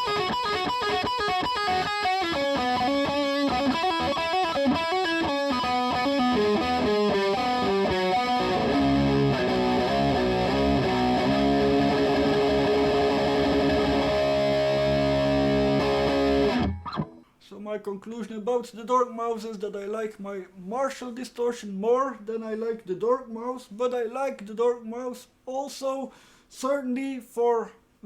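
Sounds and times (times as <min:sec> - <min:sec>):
distorted electric guitar: 0:00.0 - 0:17.3.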